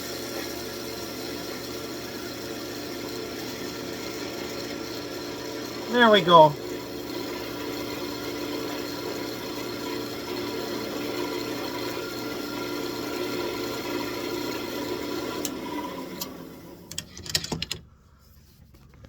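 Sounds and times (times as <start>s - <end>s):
lathe motor humming: 1.2s - 16.9s.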